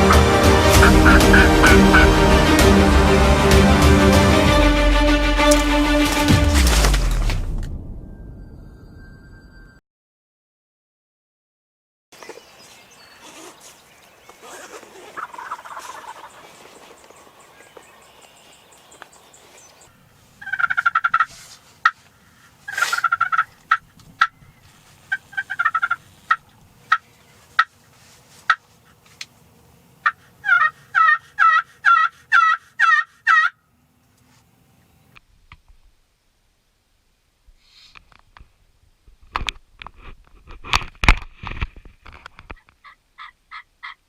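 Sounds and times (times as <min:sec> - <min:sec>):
wild turkey gobbling: 0:00.0 - 0:02.2, 0:15.0 - 0:17.0, 0:20.4 - 0:22.0, 0:22.7 - 0:24.4, 0:25.1 - 0:27.7, 0:30.0 - 0:33.6, 0:42.8 - 0:44.0
turkey yelps: 0:00.8 - 0:02.2, 0:14.6 - 0:16.5, 0:20.4 - 0:22.0, 0:22.7 - 0:24.3, 0:25.1 - 0:26.4, 0:30.0 - 0:33.6, 0:42.8 - 0:44.0.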